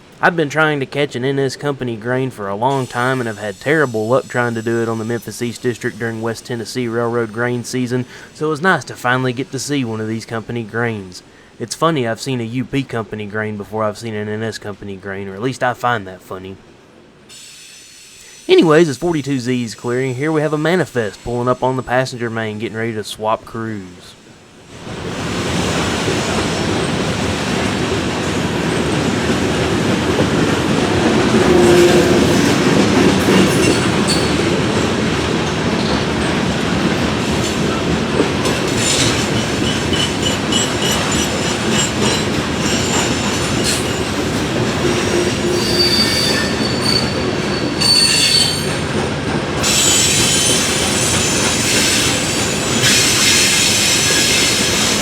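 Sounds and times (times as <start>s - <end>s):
train cars rolling on rails: 0.0s - 55.0s
wheel squeals: 31.4s - 34.6s, 38.7s - 44.2s, 44.8s - 48.9s, 49.6s - 55.0s.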